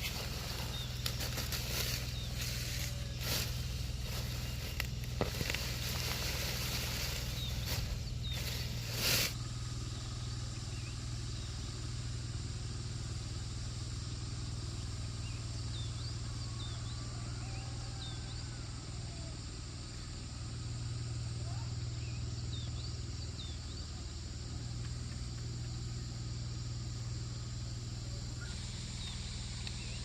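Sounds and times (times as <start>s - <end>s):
noisy rustling: 0.0s - 9.4s
steady low hum: 0.0s - 30.0s.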